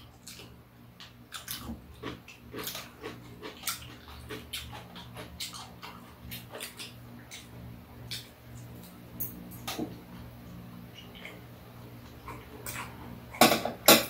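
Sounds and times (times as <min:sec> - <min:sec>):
crunching and chewing food: 0:00.0 - 0:13.9
low steady hum: 0:00.0 - 0:14.0.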